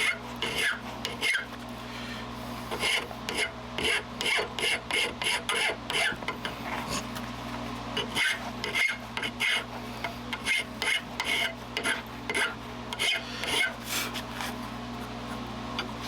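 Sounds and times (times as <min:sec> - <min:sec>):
hand file rasping on steel: 0:00.0 - 0:01.5, 0:02.7 - 0:07.0, 0:08.0 - 0:09.7, 0:10.3 - 0:14.2.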